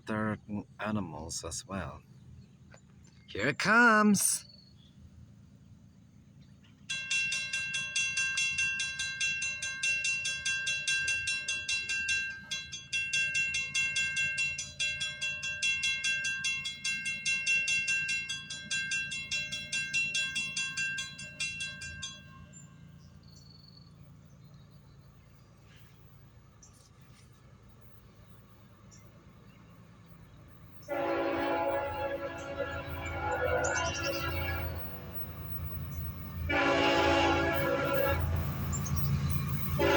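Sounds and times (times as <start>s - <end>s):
low train rumble: 0.0s - 39.9s
crossing warning bell ringing: 6.8s - 23.4s, 30.8s - 39.9s.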